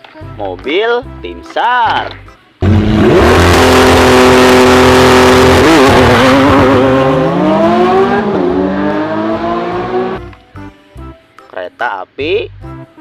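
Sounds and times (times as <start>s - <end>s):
car engine revving: 2.6s - 10.3s.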